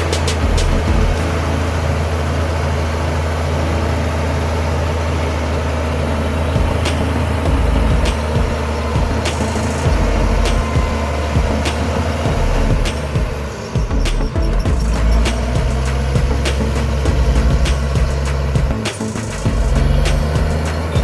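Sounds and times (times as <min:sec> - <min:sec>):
heavy diesel machinery running: 0:00.0 - 0:21.0
sharp metallic clanks: 0:06.6 - 0:21.0.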